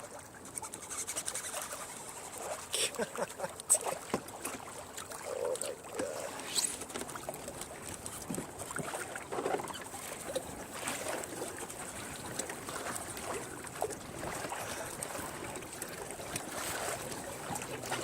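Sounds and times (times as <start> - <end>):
water lapping against kayak hull: 0.0 - 18.0.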